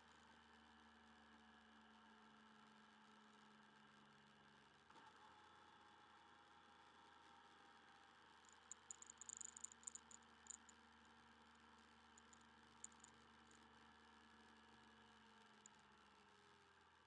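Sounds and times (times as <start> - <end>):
small sharp clicks: 8.5 - 10.7.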